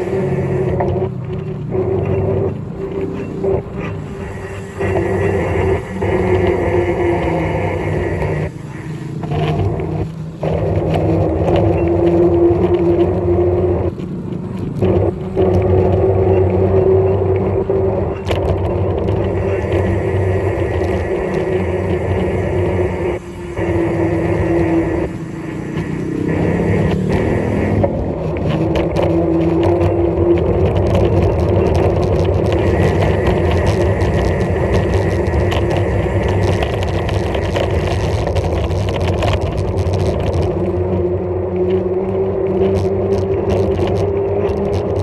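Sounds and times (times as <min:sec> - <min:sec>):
steady tone: 0:00.0 - 0:01.1, 0:02.1 - 0:10.1, 0:19.0 - 0:30.2, 0:31.9 - 0:38.2
low hum: 0:00.0 - 0:45.0
road traffic noise: 0:00.0 - 0:45.0
vehicle running along road: 0:00.0 - 0:45.0
wind rush while riding: 0:00.0 - 0:45.0.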